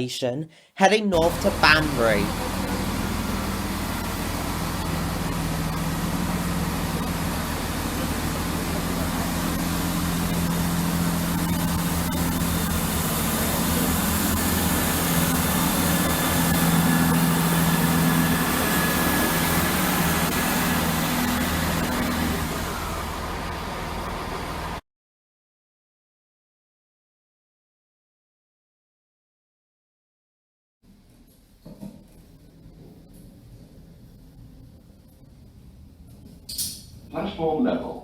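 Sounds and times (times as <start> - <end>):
train diesel engine drone: 1.2 - 24.8.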